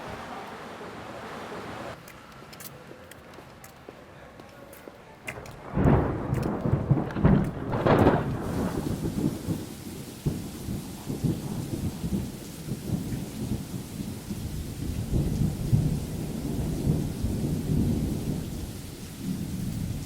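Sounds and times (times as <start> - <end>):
rain: 0.0 - 20.0
low rumble of thunder: 5.5 - 20.0.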